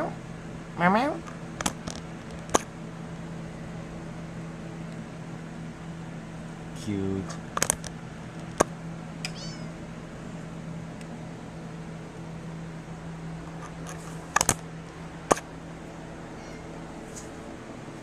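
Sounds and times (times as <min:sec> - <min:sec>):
steady low hum: 0:00.0 - 0:18.0
cat chirping meow: 0:09.2 - 0:09.9.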